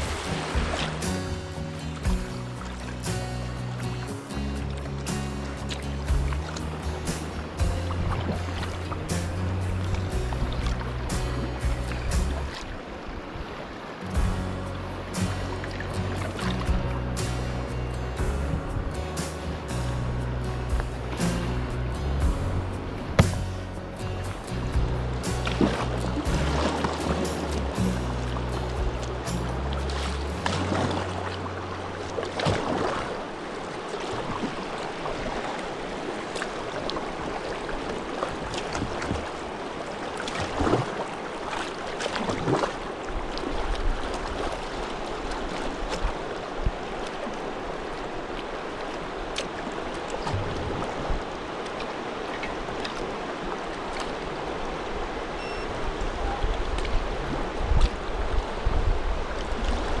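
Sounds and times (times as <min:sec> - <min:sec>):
low bumps: 0:00.0 - 0:12.8, 0:14.2 - 0:32.4, 0:50.2 - 0:51.2
river water rushing: 0:00.0 - 1:00.0
water splashes: 0:00.0 - 1:00.0.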